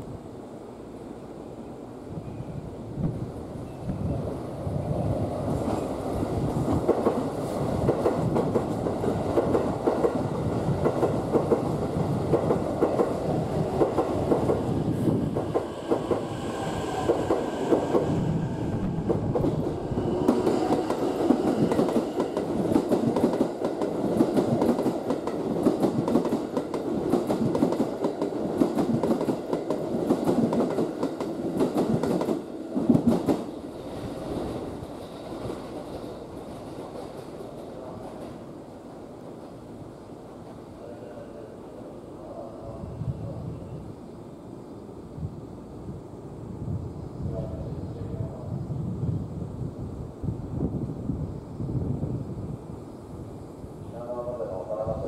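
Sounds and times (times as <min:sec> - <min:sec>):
train rolling rumble: 0:02.3 - 0:40.8.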